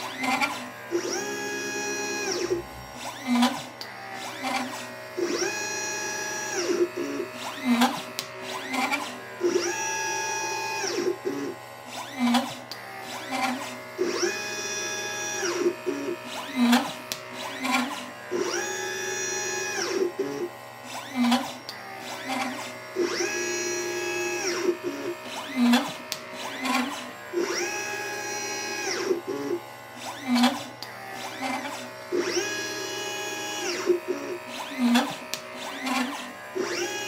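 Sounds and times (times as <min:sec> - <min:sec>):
low motor whirs: 0:00.0 - 0:37.0
stepper motors whining: 0:00.0 - 0:37.0
sharp machine clicks: 0:24.0 - 0:27.8, 0:33.6 - 0:37.0.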